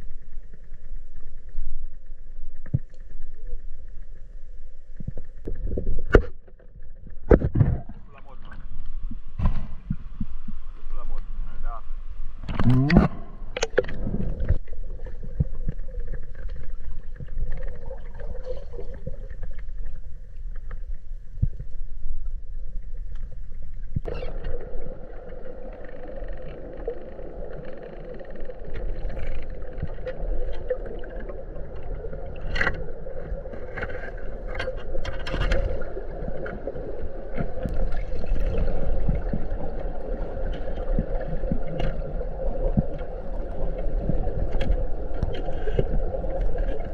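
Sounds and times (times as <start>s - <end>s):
water noise: 0.0s - 46.9s
knocks and scrapes against hull: 5.0s - 11.1s, 12.4s - 21.8s, 25.8s - 43.1s, 43.7s - 46.9s.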